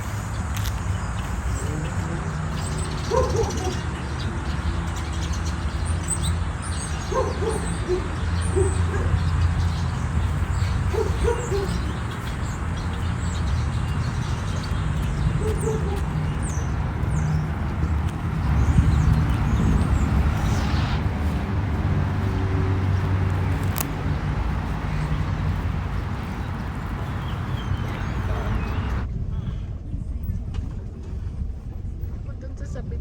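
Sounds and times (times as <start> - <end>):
steady low rumble: 0.0 - 33.0
bird hooting: 10.8 - 12.3.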